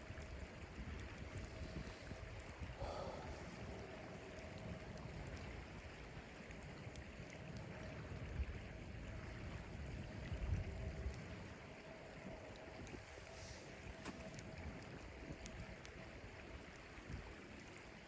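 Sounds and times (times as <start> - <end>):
blizzard wind rumbling: 0.0 - 6.1
faint clicks: 12.5 - 16.0.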